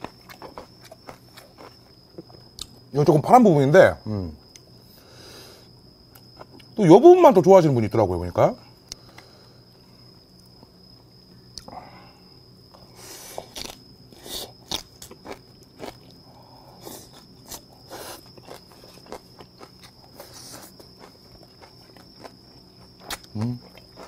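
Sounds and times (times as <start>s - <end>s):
wet chewing crunches: 0.0s - 2.8s, 13.4s - 16.2s, 16.8s - 24.0s.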